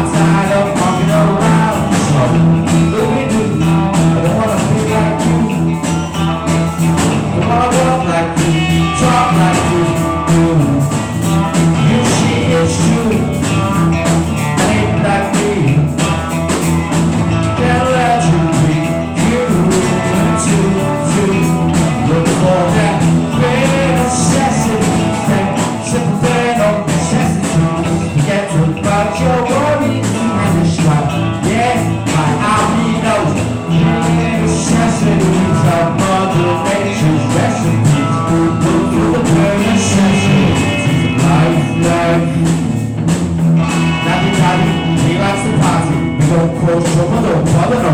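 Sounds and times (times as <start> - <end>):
rock band jamming: 0.0 - 47.9
steady bass line: 0.0 - 47.9.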